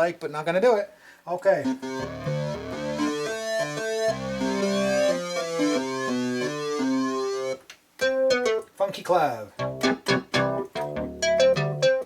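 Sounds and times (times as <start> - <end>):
bright sweeping synth tone: 1.7 - 7.6
synthesizer sustained chords: 1.7 - 7.6.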